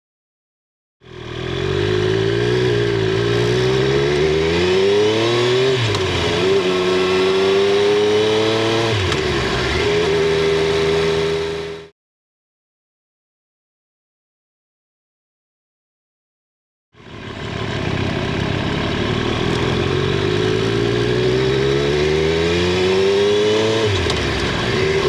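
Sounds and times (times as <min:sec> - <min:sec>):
motorcycle engine accelerating: 0:01.0 - 0:11.9, 0:17.0 - 0:25.0.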